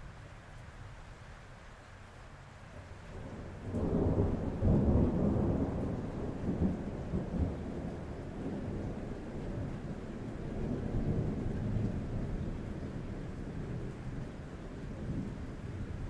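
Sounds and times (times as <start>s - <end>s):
rain on a roof: 0.0s - 16.0s
thunder rumbling: 3.2s - 16.0s.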